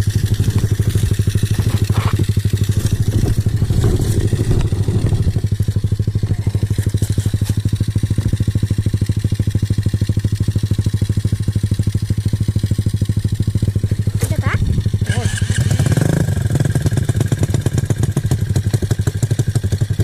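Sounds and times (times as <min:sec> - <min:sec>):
small motorbike engine idling: 0:00.0 - 0:20.0
irregular clatter: 0:00.1 - 0:07.8.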